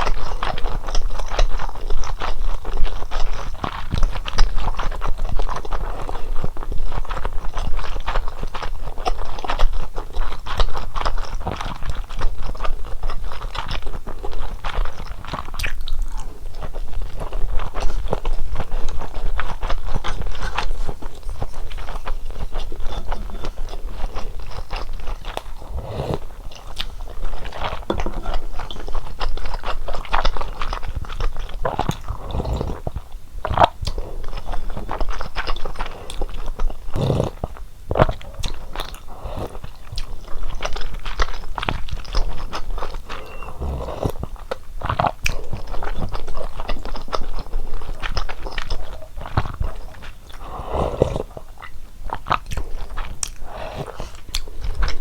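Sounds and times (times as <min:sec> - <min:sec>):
person biting and chewing: 0:19.3 - 0:32.8.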